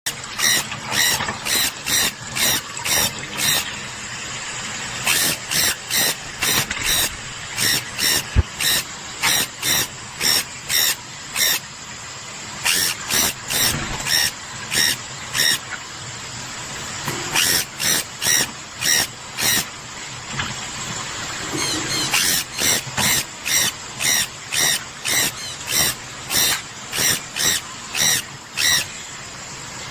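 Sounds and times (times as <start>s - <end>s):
parrots screeching: 0.4s - 3.6s, 5.1s - 11.6s, 12.6s - 15.6s, 17.4s - 19.7s, 21.6s - 28.9s.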